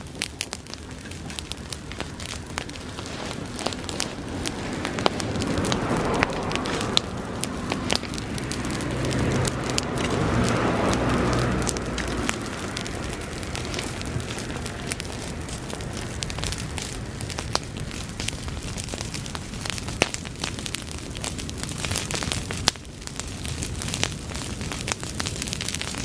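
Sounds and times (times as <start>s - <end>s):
grass fire crackling and popping: 0.0s - 26.0s
rush of flames: 0.0s - 26.0s.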